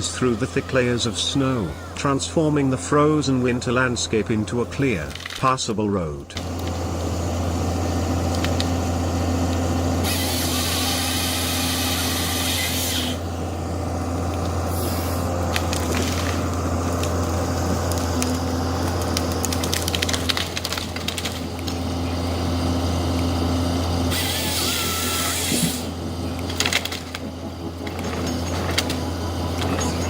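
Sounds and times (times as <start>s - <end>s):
snowplow engine humming: 0.0s - 30.0s
quick clicks and crackles: 5.0s - 5.6s, 14.2s - 22.0s, 25.4s - 30.0s
blade hissing through snow: 10.0s - 13.3s, 14.6s - 15.4s, 24.0s - 26.0s.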